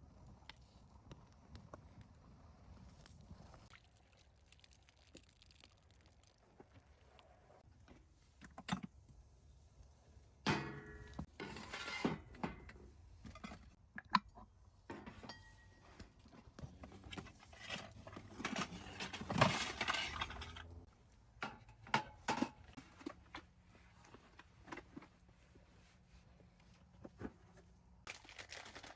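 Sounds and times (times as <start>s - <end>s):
cookware and utensils clattering: 10.5s - 13.8s, 14.9s - 16.0s, 16.8s - 23.3s.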